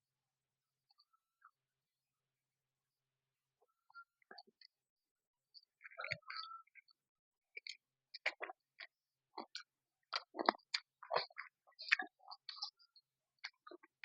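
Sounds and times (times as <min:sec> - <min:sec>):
person chewing food: 0:07.6 - 0:12.8.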